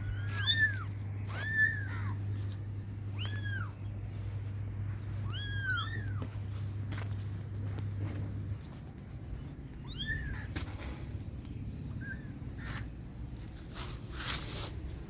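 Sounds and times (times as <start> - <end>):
kittens mewing: 0.0 - 6.6, 9.7 - 11.2, 11.8 - 13.1.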